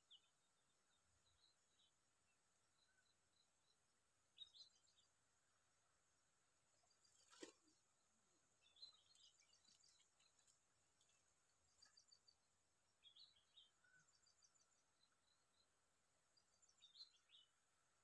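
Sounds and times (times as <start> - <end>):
faint bird chirps: 0.0 - 5.2, 8.6 - 17.6.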